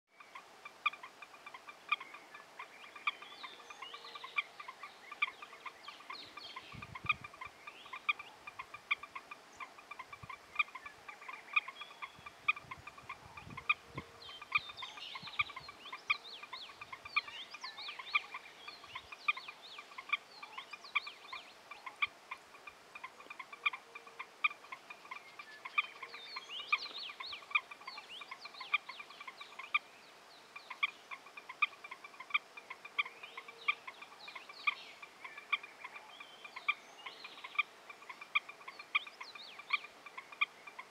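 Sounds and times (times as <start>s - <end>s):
birds harsh calls: 0.2s - 29.9s.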